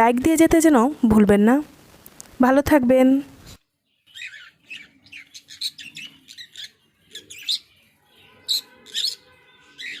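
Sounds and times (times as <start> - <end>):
birds chirping: 3.6 - 10.0.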